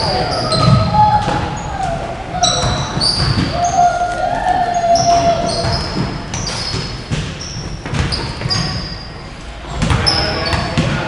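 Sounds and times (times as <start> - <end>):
sneaker squeaks on floor: 0.0 - 1.8, 2.4 - 3.9, 4.7 - 10.9
basketball bouncing on court: 2.4 - 3.6, 5.0 - 9.0, 9.7 - 11.0.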